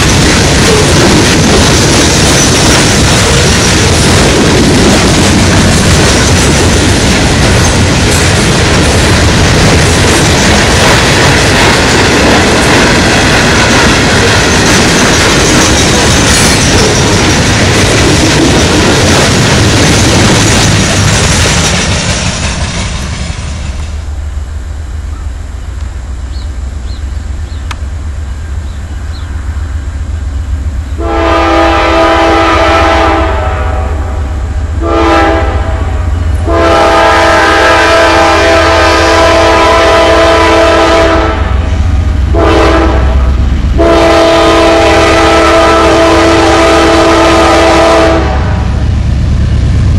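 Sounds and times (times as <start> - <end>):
wheels clattering on rails: 0.0 - 24.2
train rumbling past: 0.0 - 49.9
locomotive air horn: 31.0 - 41.7, 42.3 - 48.7.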